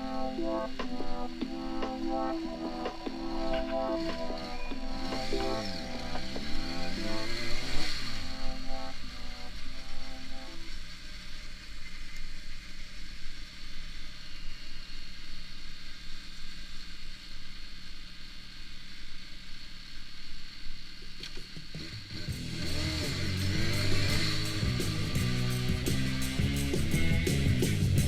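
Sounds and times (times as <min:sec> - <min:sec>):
music: 0:00.0 - 0:10.9, 0:21.8 - 0:28.0
motorcycle engine drone: 0:00.0 - 0:28.0
wind and road hiss: 0:00.2 - 0:27.9.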